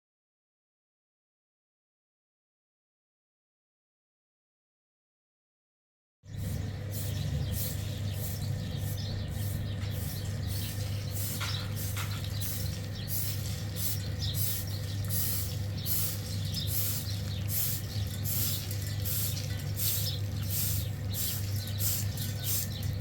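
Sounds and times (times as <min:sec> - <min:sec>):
birds chirping: 0:06.3 - 0:23.0.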